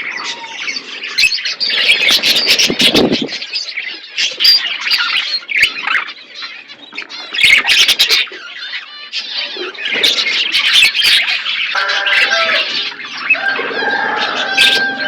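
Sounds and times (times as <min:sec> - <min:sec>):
parrot squawking: 0:10.6 - 0:15.0.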